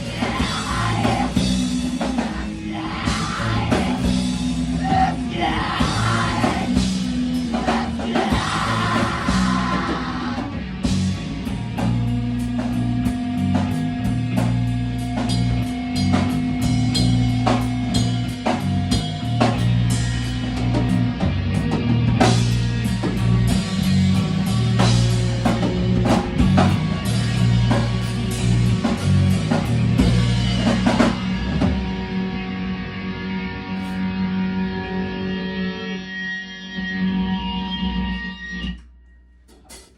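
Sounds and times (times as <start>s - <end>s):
drum kit: 0.0s - 35.9s, 39.4s - 39.9s
rock band playing: 0.0s - 38.8s
electric guitar ringing: 30.0s - 39.2s.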